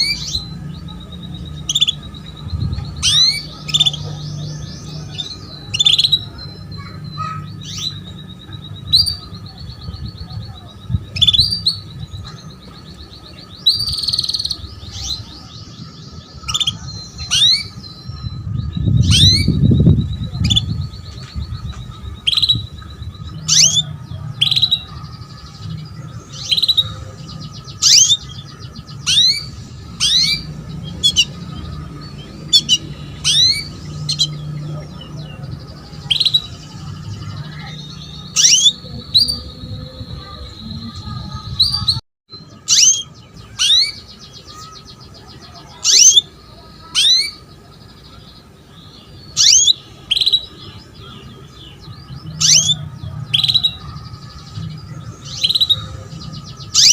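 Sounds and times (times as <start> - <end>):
canary chirping and trilling: 0.0 - 56.9.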